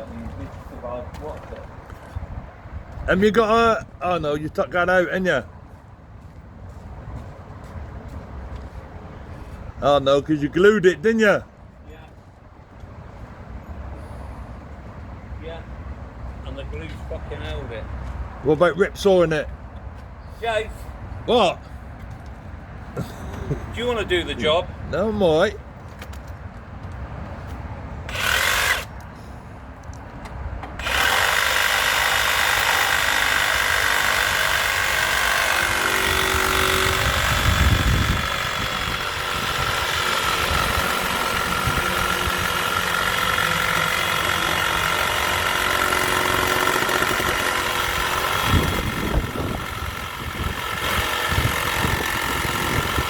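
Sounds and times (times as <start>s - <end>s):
power saw cutting wood: 28.1s - 28.9s, 30.8s - 53.0s.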